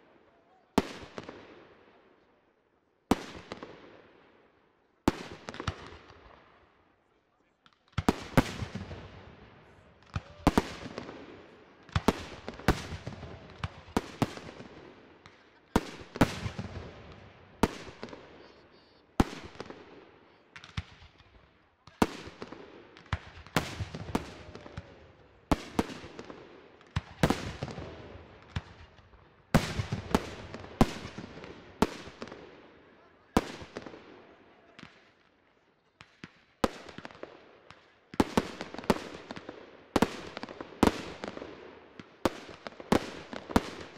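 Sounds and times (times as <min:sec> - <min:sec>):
fireworks crackle and rumble: 0:00.0 - 0:43.9
fireworks bangs: 0:07.6 - 0:32.6.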